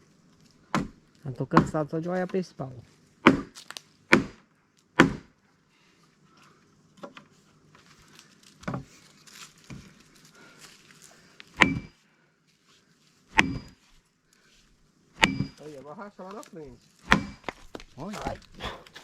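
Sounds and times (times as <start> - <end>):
axe striking a log: 0.7 - 1.8, 3.2 - 4.4, 5.0 - 5.3, 11.6 - 11.9, 13.3 - 13.8, 15.2 - 15.6, 17.0 - 17.8.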